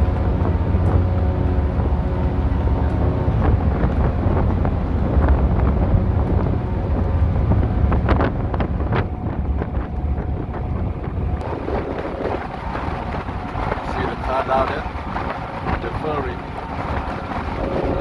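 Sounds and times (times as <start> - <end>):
ship engines rumbling: 0.0 - 18.0
wind buffeting microphone: 0.0 - 18.0.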